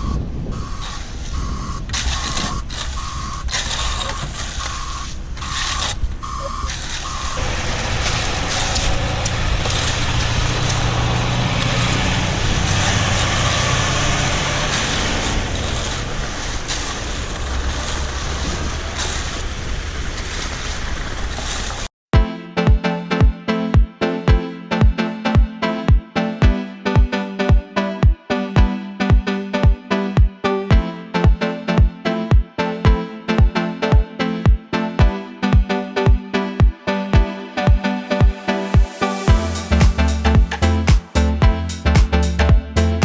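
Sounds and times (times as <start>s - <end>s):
truck reversing alarm beeping: 0.0s - 17.0s
truck engine running: 0.0s - 21.9s, 38.8s - 43.0s
wind: 0.0s - 21.9s.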